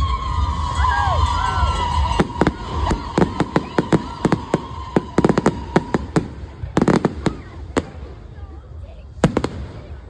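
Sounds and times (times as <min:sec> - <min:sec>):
fireworks bangs and cracks: 0:00.0 - 0:08.4, 0:09.2 - 0:10.0.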